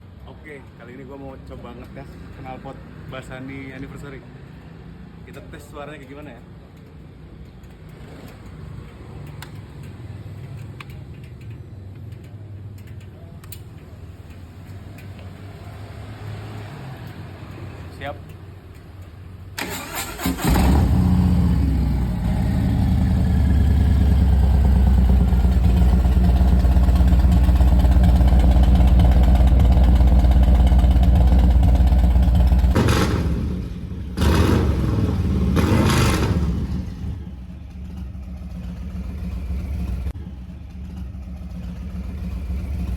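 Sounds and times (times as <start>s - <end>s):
motorcycle engine revving and idling: 19.8s - 42.9s.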